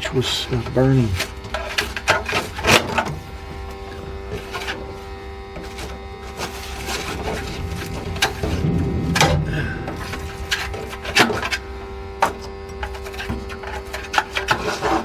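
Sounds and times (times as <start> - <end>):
mechanical hum with clear tone: 0.0 - 15.0
light scrapes and clicks: 12.2 - 15.0.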